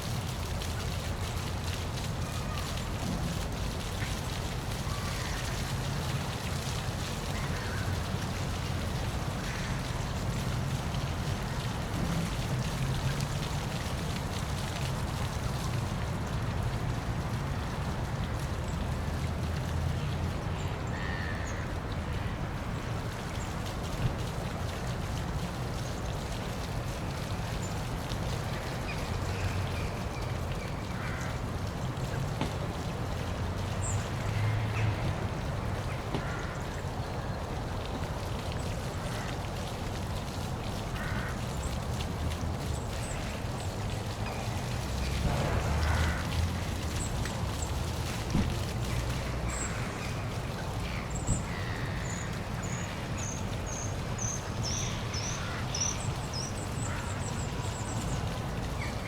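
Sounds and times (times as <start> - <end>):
waterfall splashing: 22.4 - 59.0.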